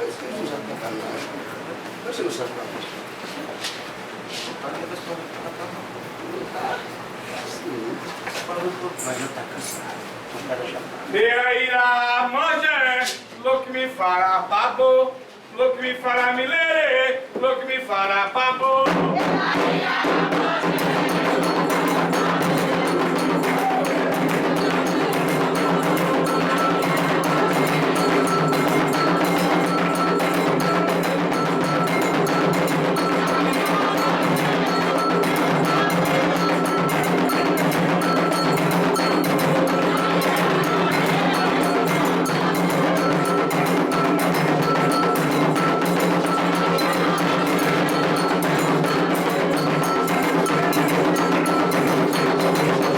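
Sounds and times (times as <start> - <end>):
hand drums: 18.9 - 52.9
voices chanting: 19.0 - 52.9
metal bell struck: 21.0 - 52.9.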